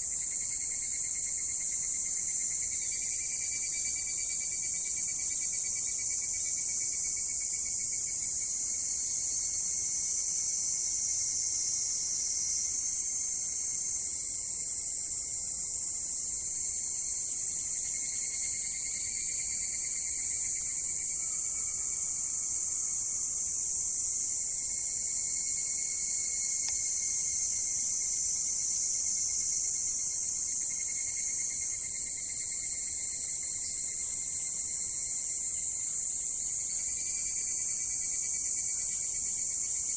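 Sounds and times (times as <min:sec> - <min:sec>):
insects chirring: 0:24.6 - 0:39.9.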